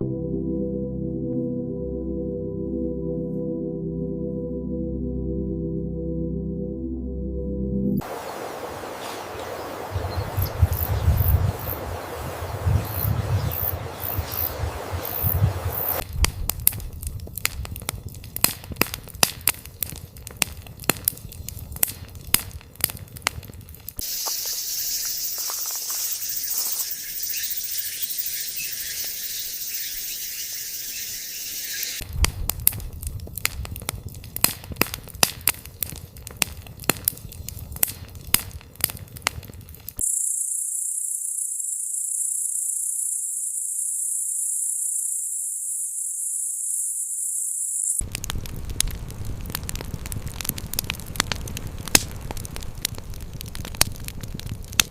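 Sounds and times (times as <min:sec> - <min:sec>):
high hiss: 0:08.0 - 0:16.0, 0:24.0 - 0:32.0
campfire crackling: 0:08.0 - 0:40.4, 0:48.0 - 0:54.9.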